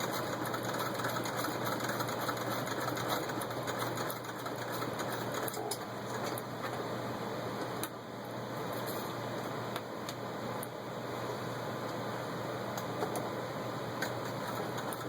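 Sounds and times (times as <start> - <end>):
sewing machine clattering: 0.0 - 5.6.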